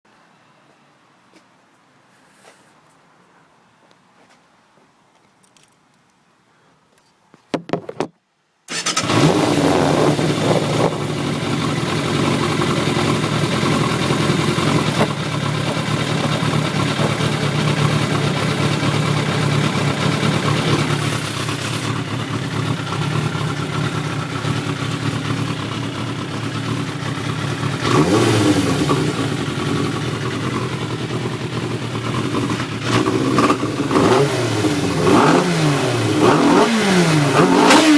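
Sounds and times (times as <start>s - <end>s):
motorcycle engine idling: 8.7s - 35.0s.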